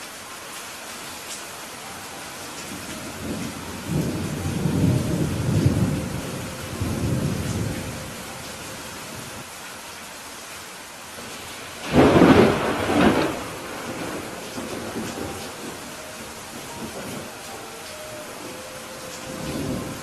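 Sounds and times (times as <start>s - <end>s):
steady rain falling: 0.0s - 20.0s
rolling thunder rumble: 2.7s - 9.4s, 11.2s - 20.0s.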